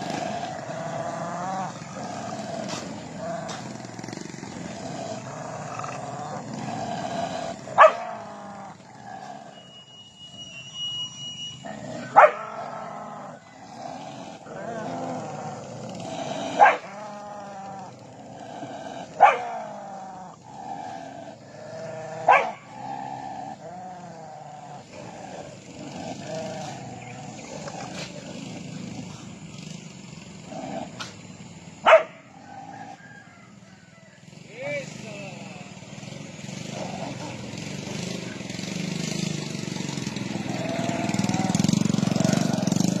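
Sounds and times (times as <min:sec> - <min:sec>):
dogs making drawn-out calls: 0:00.0 - 0:09.7, 0:11.6 - 0:29.5, 0:30.4 - 0:33.0, 0:36.5 - 0:43.0
vehicle engine running: 0:00.0 - 0:43.0
dog barking sharply: 0:07.8 - 0:08.1
faint wavering high tone: 0:09.4 - 0:11.8.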